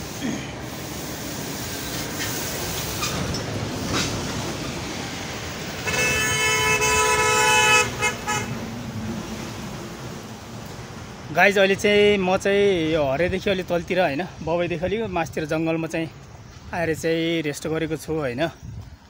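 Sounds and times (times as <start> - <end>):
wind and road noise: 0.0 - 19.0
vehicle horn: 5.8 - 8.7.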